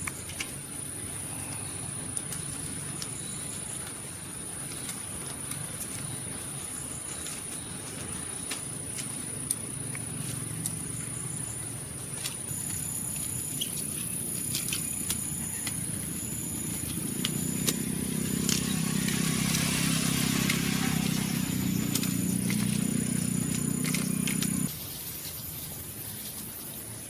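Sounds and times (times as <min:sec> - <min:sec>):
low engine hum: 0:07.6 - 0:24.7
high-pitched insect drone: 0:12.5 - 0:25.4.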